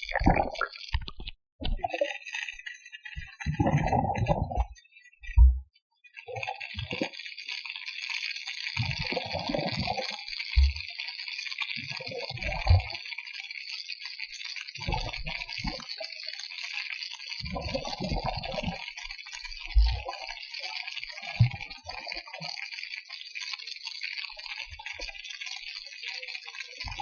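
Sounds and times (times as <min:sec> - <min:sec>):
hissing crackle: 0:06.2 - 0:27.0.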